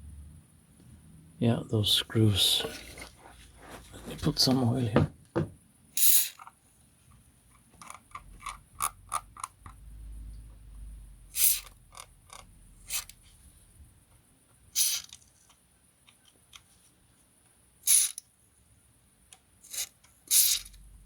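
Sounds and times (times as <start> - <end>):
clicks and scrapes on metal screws: 7.8 - 9.8, 17.9 - 18.2, 19.6 - 20.8.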